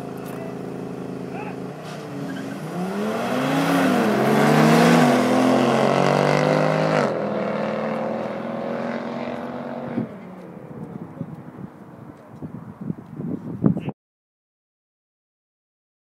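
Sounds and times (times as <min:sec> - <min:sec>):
car engine accelerating: 0:00.0 - 0:12.5.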